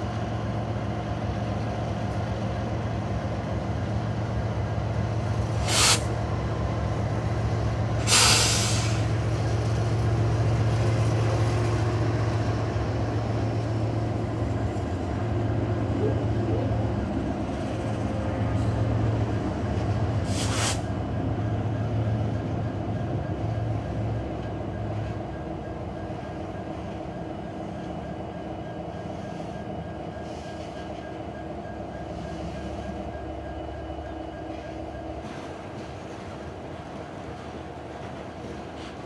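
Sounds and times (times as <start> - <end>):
freight train wheels rumbling on rail: 0.0 - 39.0
short hiss: 5.6 - 6.1, 8.0 - 9.0, 20.3 - 20.9.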